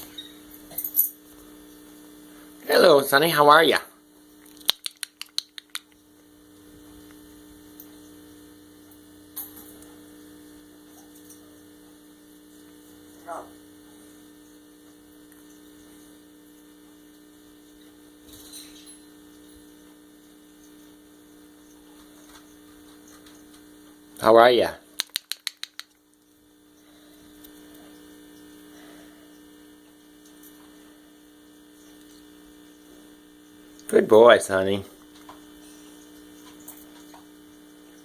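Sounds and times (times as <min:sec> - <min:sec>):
electrical hum: 0:00.0 - 0:38.0
faint clicks: 0:25.0 - 0:26.0.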